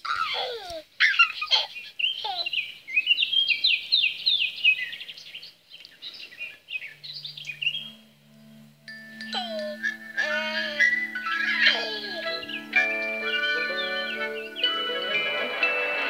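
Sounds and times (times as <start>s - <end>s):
birds singing: 0.1s - 15.7s
low steady tone: 6.8s - 15.1s.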